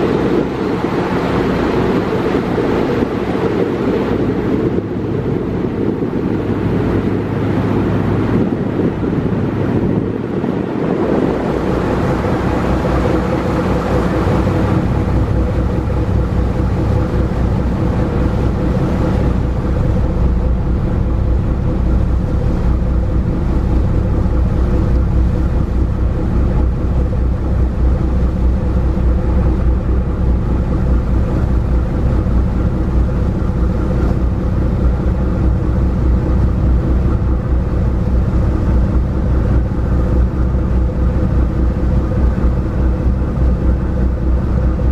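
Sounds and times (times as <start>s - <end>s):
ferry engines droning: 0.0s - 44.9s
water noise: 0.0s - 44.9s
wind: 0.0s - 44.9s.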